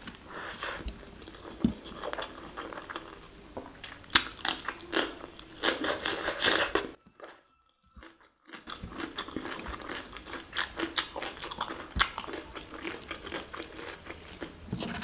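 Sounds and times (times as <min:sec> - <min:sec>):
wet chewing and lip smacking: 0:08.0 - 0:14.6.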